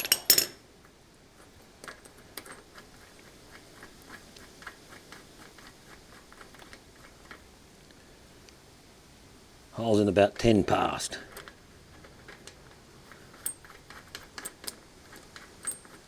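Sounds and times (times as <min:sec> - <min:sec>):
sharp metal clink: 0:00.0 - 0:00.6
small steel parts ticking and clicking: 0:11.3 - 0:16.0.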